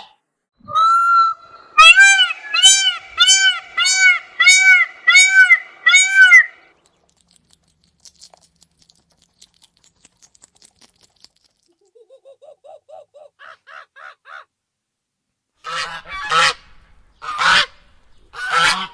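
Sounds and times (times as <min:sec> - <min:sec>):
bird notes rising in pitch: 0:00.7 - 0:06.6
loud pitched bird calls: 0:00.8 - 0:06.7.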